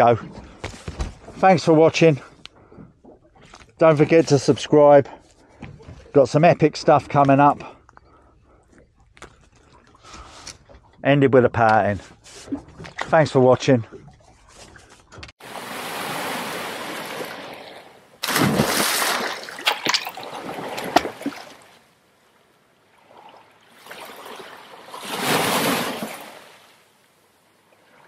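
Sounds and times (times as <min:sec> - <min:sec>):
sea water washing and splashing: 0:15.4 - 0:22.0, 0:22.9 - 0:27.0.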